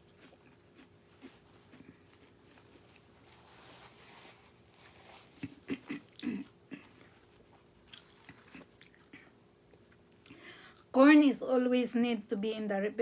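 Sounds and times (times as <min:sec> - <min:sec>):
person chewing corn on the cob: 0:00.0 - 0:10.9.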